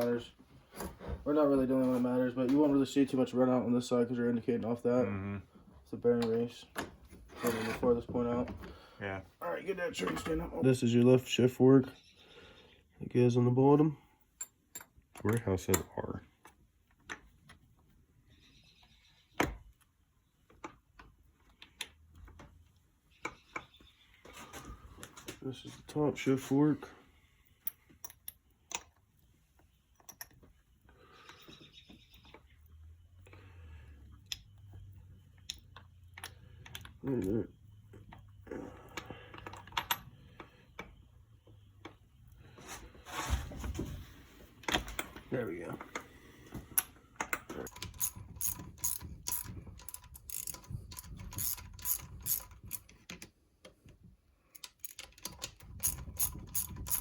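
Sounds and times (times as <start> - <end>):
metal parts clicking and knocking: 14.4 - 17.6, 27.6 - 29.1, 29.9 - 30.6, 34.2 - 41.0, 46.7 - 53.4, 54.5 - 57.0.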